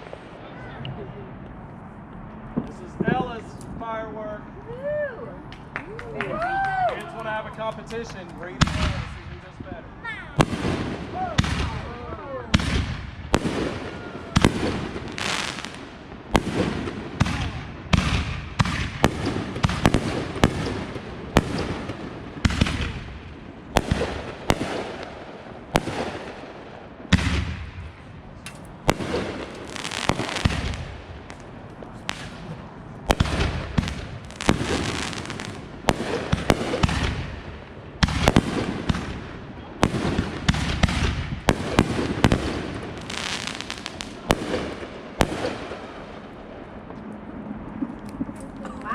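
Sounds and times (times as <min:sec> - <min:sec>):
fireworks bangs and booms: 0:00.0 - 0:01.4, 0:02.4 - 0:03.4, 0:07.9 - 0:47.0
fireworks crackling: 0:00.0 - 0:03.9, 0:04.8 - 0:48.9.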